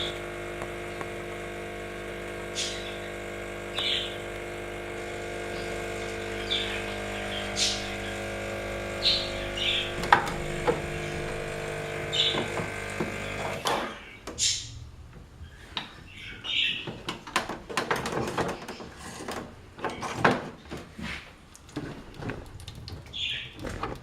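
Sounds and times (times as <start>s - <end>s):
espresso machine electric buzz: 0.0s - 14.2s.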